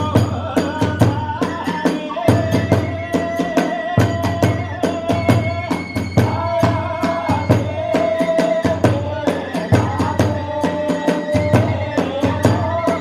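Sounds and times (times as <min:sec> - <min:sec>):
fast drum beats: 0:00.0 - 0:13.0
bamboo flute long notes: 0:02.3 - 0:08.2.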